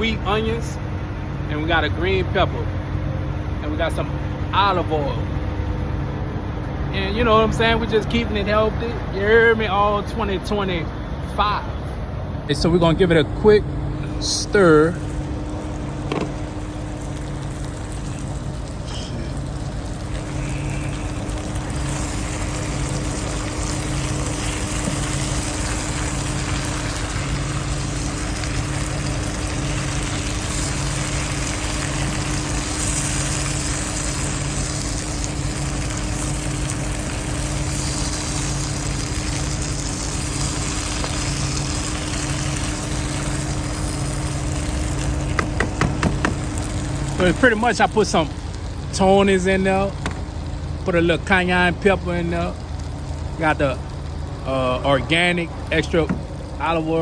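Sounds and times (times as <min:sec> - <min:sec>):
truck engine idling: 0:00.0 - 0:57.0
vegetables sizzling in a pan: 0:15.1 - 0:49.4.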